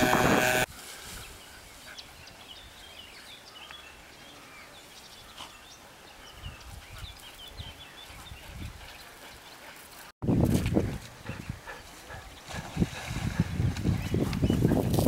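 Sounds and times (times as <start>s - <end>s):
small birds chirping: 1.2s - 12.8s, 13.8s - 15.0s.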